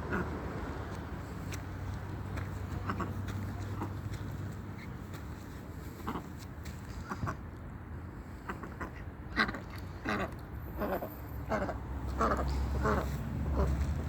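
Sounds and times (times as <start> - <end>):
ducks quacking: 0.0 - 0.7, 2.4 - 4.2, 5.9 - 7.4, 8.4 - 14.0.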